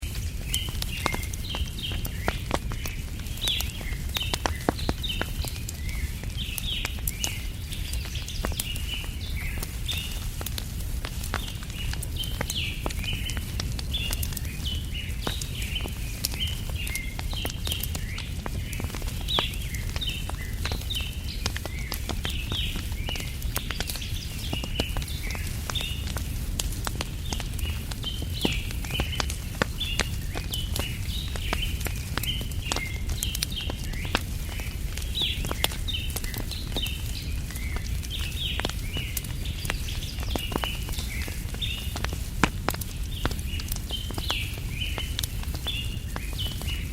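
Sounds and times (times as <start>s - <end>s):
wood fire crackling: 0.0s - 46.9s
birds chirping: 11.2s - 46.9s.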